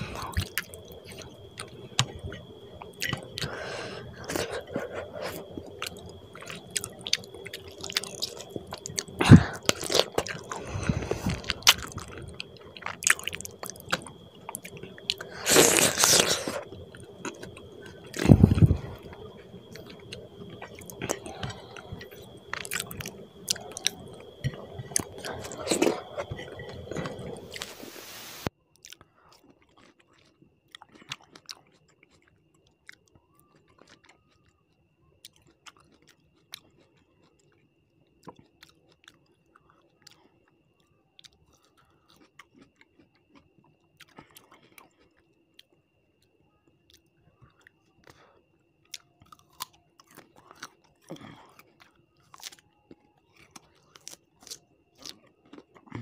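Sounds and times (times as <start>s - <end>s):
chewing with mouth clicks: 0.0s - 27.7s, 28.7s - 56.0s
crunching food: 0.0s - 27.9s, 28.7s - 56.0s
faint high whine: 0.0s - 28.5s.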